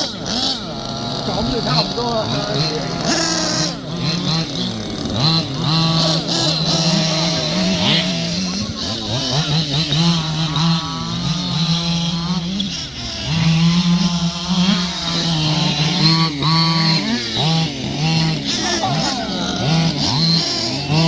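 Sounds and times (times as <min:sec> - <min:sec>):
radio-control car engines revving: 0:00.0 - 0:21.0.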